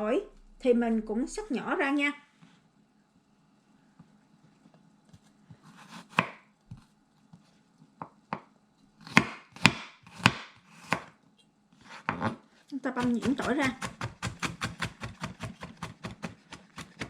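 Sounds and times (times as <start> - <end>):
knife chopping on cutting board: 5.6 - 6.8, 9.0 - 11.1, 13.0 - 17.0.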